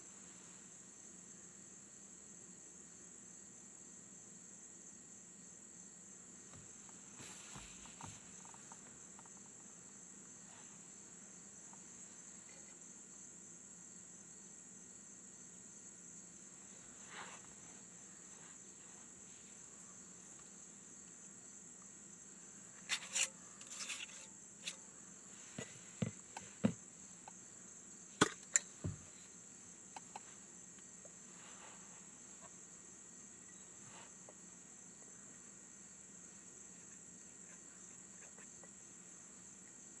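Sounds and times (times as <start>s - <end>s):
crickets trilling: 0.0s - 40.0s.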